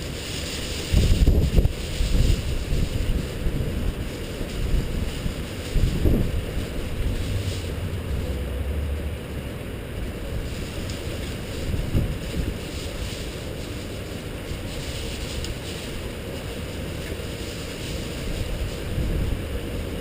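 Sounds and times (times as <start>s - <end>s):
steady rain falling: 0.0s - 20.0s
wind gusting on microphone: 0.0s - 20.0s
low rumbling surge: 4.7s - 12.8s.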